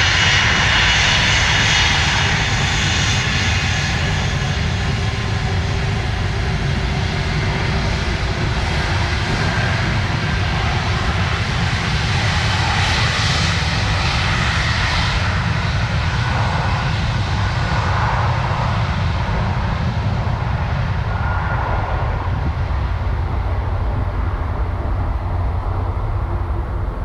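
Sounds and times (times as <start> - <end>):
airliner engines rumbling: 0.0 - 27.0.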